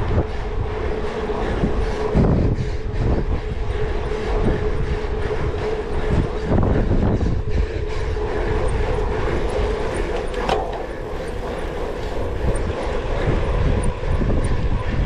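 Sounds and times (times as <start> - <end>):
steady hum: 0.0 - 15.0
wind rumbling on microphone: 0.0 - 15.0
bike rattling: 8.5 - 12.9.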